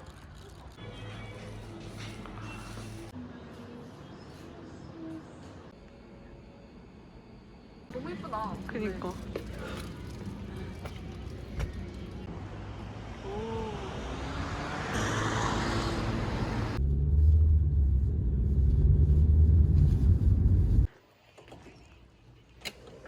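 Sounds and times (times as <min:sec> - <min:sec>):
road vehicle engine and tyre rumble: 0:00.0 - 0:03.8, 0:07.9 - 0:20.9.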